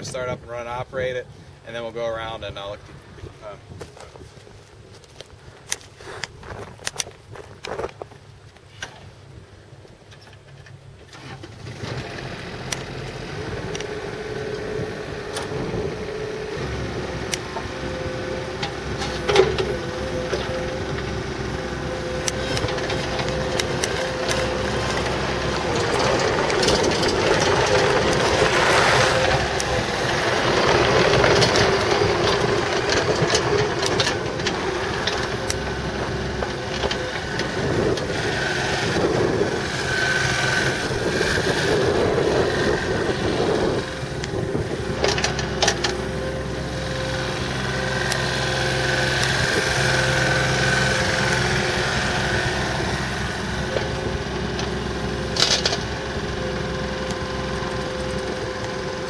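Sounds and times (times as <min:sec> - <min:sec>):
excavator diesel engine running: 0:11.2 - 0:59.0.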